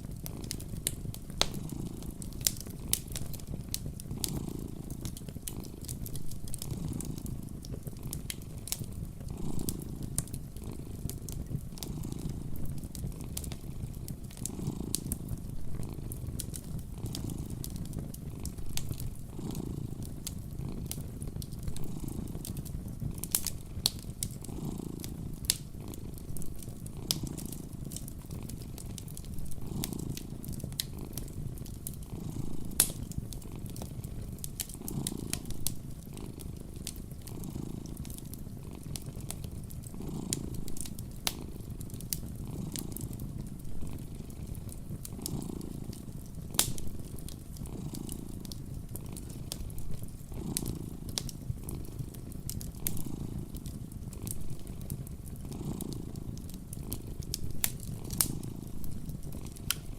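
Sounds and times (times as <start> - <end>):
cat purring: 0.0 - 59.9
fireplace crackling: 0.0 - 59.9.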